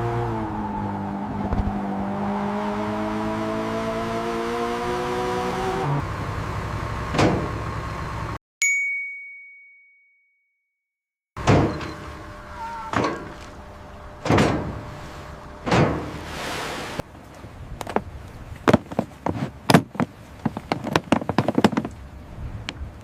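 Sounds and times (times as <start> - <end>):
engine revving: 0.0 - 8.4
ringing ding: 8.6 - 10.5
heavy knocks: 18.7 - 21.9.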